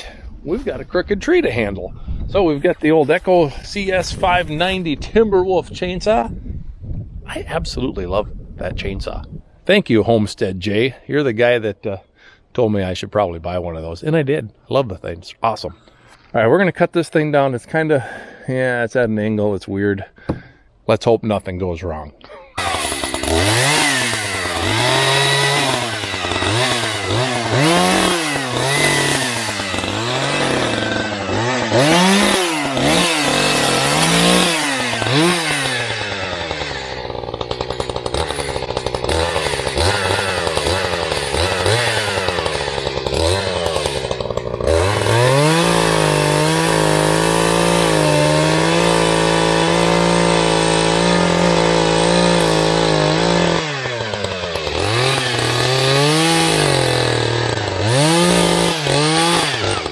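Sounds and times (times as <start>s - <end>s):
chainsaw revving: 4.0s - 4.8s, 22.6s - 59.9s.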